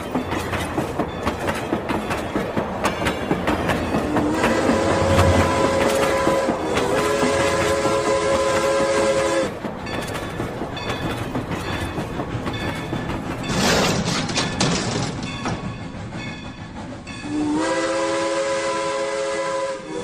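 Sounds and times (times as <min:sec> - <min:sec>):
clicking like wheels on rails: 0:00.0 - 0:17.3
toy train horn: 0:04.2 - 0:09.5, 0:17.3 - 0:20.0.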